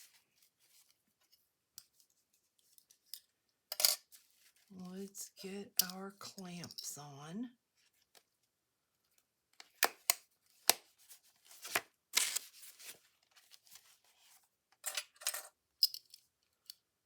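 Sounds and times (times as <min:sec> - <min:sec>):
paper rustling: 0:11.0 - 0:14.4.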